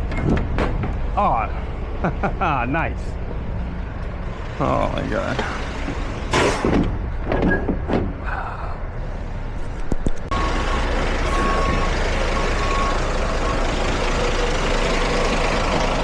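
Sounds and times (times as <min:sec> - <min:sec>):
truck engine rumbling: 0:00.0 - 0:16.0
reversing alarm beeping: 0:10.3 - 0:13.8.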